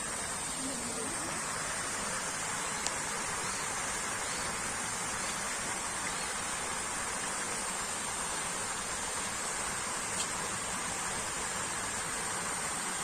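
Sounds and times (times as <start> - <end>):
water flowing: 0.0 - 13.0
faint tick: 2.8 - 3.0.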